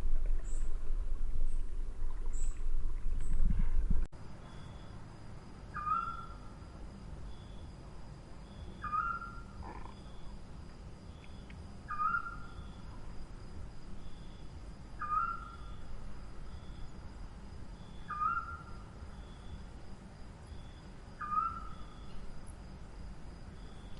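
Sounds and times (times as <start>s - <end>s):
bird calling: 5.7s - 6.4s, 8.8s - 10.3s, 11.1s - 13.0s, 15.0s - 15.8s, 18.0s - 18.8s, 21.2s - 22.2s.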